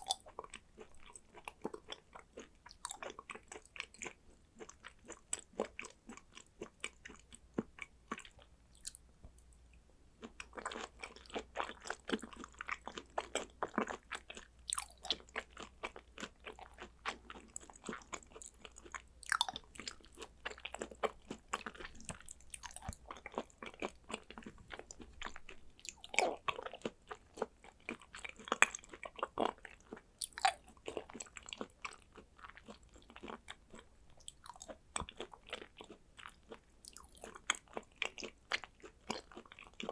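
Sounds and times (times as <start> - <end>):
person chewing with wet mouth sounds: 0.0 - 9.6, 10.2 - 39.9.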